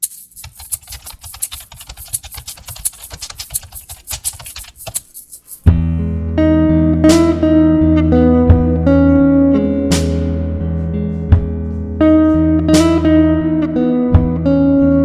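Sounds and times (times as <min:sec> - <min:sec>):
computer keyboard typing: 0:00.0 - 0:05.7
loud guitar music: 0:05.7 - 0:15.0.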